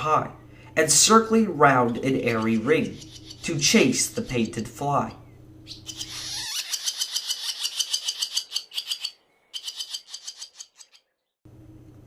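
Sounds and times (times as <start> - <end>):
swallow twittering: 1.7 - 11.4.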